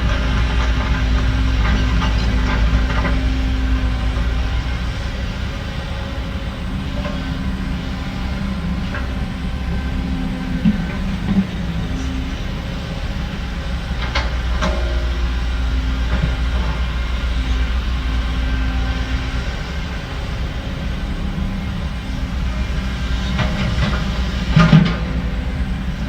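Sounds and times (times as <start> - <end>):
diesel machinery droning: 0.0 - 26.0.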